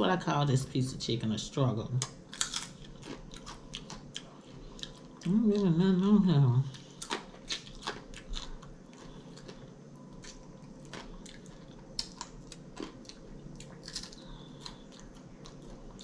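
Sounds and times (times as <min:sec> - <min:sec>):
chewing and biting crispy food: 0:02.0 - 0:16.0.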